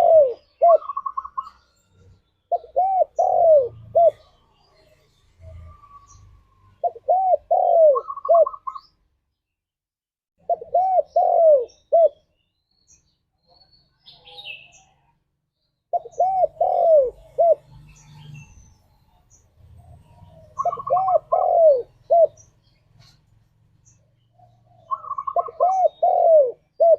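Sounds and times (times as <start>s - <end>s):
dove cooing: 0.0s - 1.6s, 2.5s - 4.4s, 5.4s - 8.9s, 10.4s - 12.2s, 15.9s - 18.8s, 19.8s - 23.2s, 24.3s - 26.9s.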